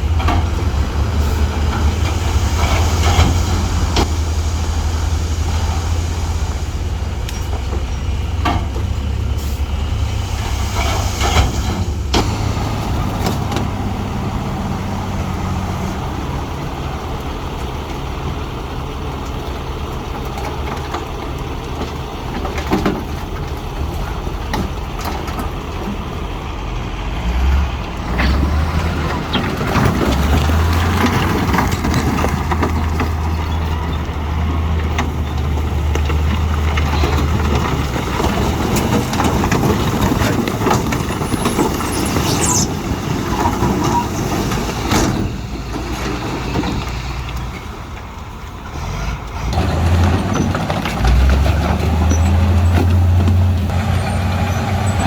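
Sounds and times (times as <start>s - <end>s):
diesel engine running: 0.0s - 55.0s
clanks of metal and rock: 28.0s - 48.1s.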